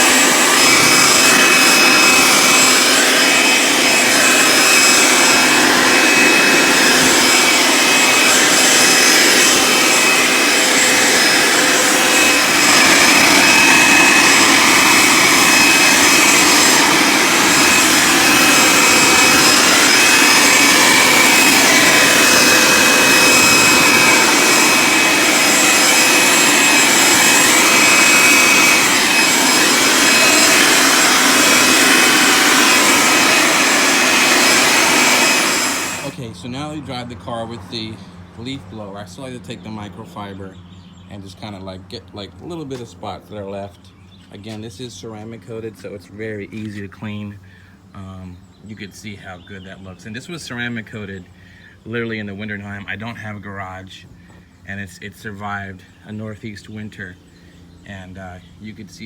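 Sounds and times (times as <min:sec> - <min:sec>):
leaf blower running: 0:00.0 - 0:36.8.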